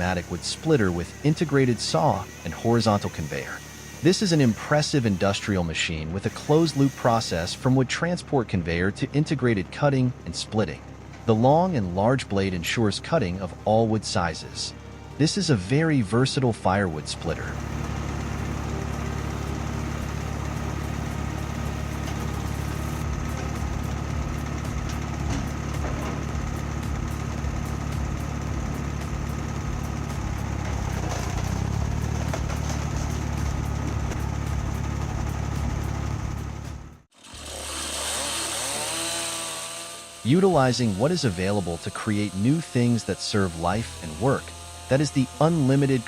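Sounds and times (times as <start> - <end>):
hissy machine sound: 0.0 - 7.8, 17.4 - 24.4
machine engine running: 17.2 - 37.8, 40.0 - 46.0.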